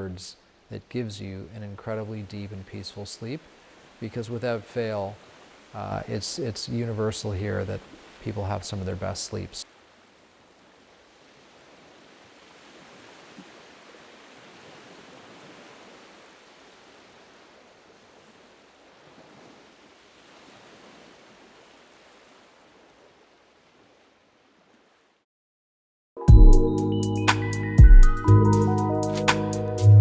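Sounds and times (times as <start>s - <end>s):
faint ocean waves washing ashore: 0.0s - 25.2s.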